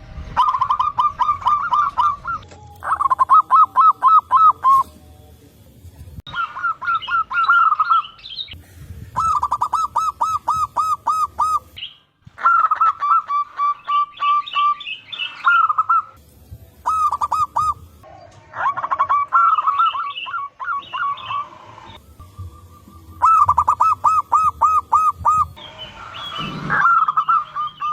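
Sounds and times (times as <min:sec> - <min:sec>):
doves cooing: 0:00.4 - 0:05.0, 0:09.2 - 0:11.8, 0:16.9 - 0:27.9.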